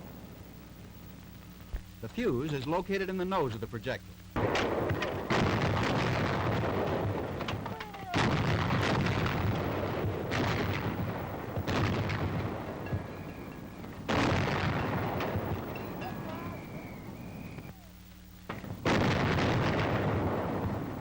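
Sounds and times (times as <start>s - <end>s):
antiaircraft guns firing: 4.4s - 17.8s, 18.5s - 21.0s.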